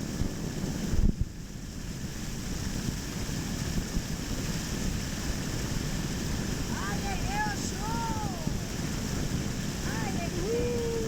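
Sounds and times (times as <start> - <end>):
waterfall rushing: 5.9 - 11.0
microphone rumble: 6.5 - 11.0.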